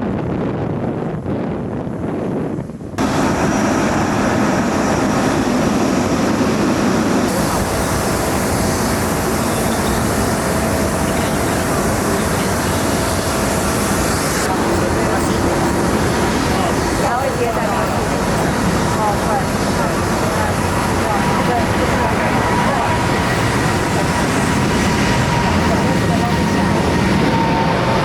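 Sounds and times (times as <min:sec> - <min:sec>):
wind on microphone: 0:00.0 - 0:28.0
jet engine roar: 0:02.9 - 0:28.0.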